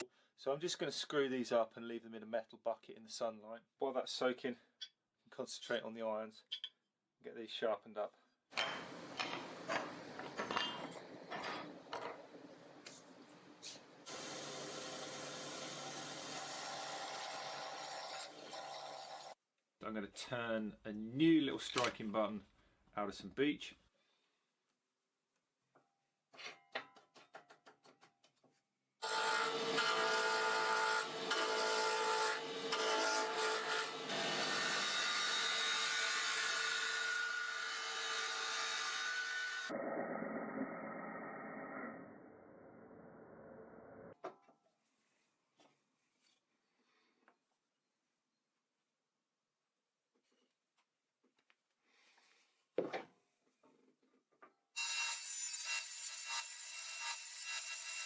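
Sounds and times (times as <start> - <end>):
power tool running: 14.1 - 18.0
wood lathe cutting: 14.1 - 19.3, 29.0 - 39.7.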